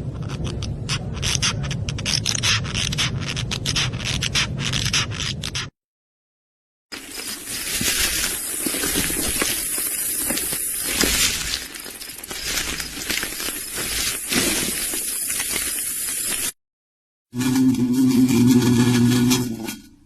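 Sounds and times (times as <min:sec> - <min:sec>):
high whine of insects: 0:07.0 - 0:16.6.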